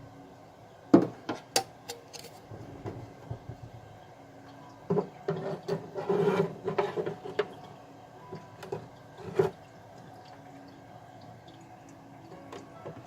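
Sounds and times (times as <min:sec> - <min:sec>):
plastic parts rubbing and scraping: 0:05.3 - 0:07.4.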